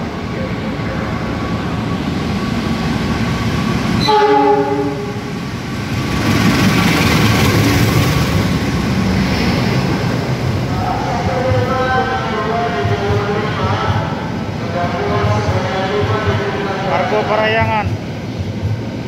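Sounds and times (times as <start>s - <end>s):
train rumble: 0.0s - 19.0s
train horn blast: 4.0s - 5.3s.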